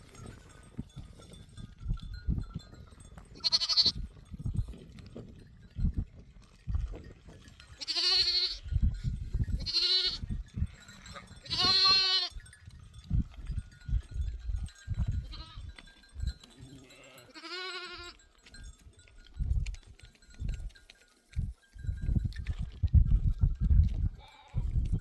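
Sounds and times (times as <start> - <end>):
goats bleating: 3.4 - 4.0, 7.8 - 8.7, 9.6 - 10.3, 11.0 - 12.4, 15.2 - 15.7, 16.5 - 18.2.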